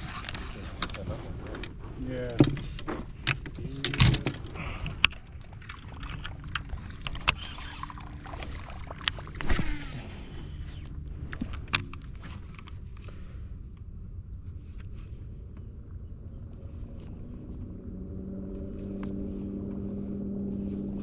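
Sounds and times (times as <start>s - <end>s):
steady low rumble: 0.0s - 21.0s
clicks and knocks on boat: 0.2s - 7.5s.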